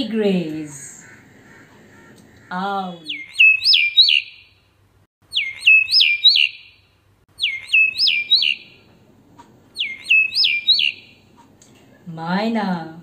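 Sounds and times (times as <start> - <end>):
recorded bird call whistles: 3.1 - 4.5, 5.3 - 6.8, 7.4 - 8.8, 9.8 - 11.1.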